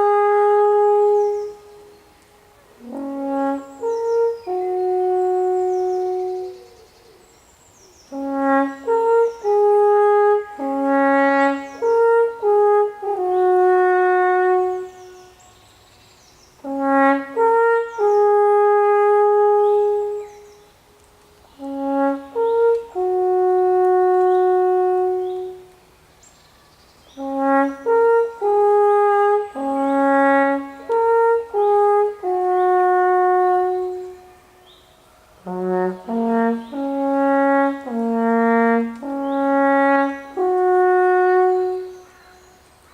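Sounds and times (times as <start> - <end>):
alphorn playing slow melody: 21.6 - 25.8, 35.5 - 42.1.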